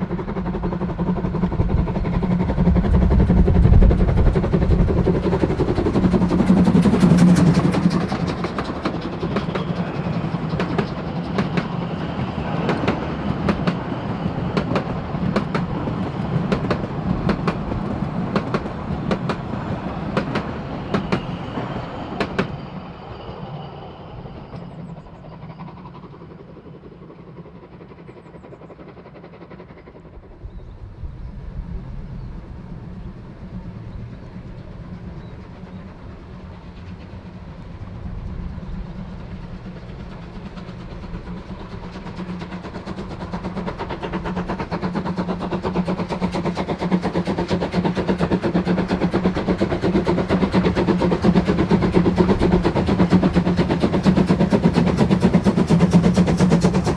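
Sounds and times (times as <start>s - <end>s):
steam locomotive running: 0.0s - 56.9s.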